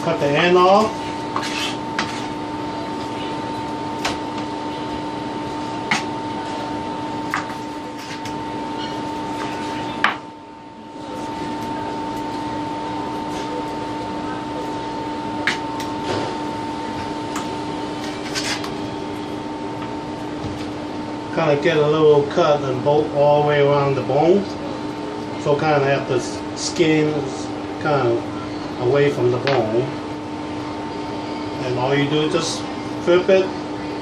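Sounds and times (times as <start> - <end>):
appliance hum: 0.0 - 34.0.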